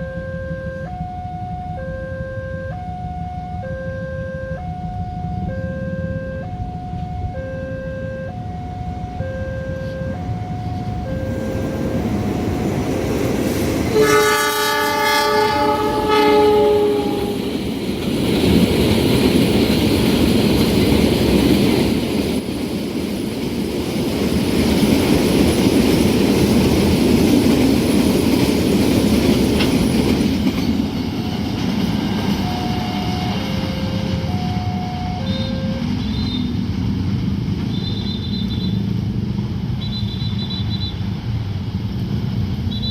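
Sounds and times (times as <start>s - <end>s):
train horn: 0.0s - 12.7s, 13.9s - 17.5s, 32.4s - 36.5s
level crossing two-tone alarm: 0.0s - 12.9s, 32.4s - 36.0s
train wheels rumbling on rail: 8.7s - 42.9s.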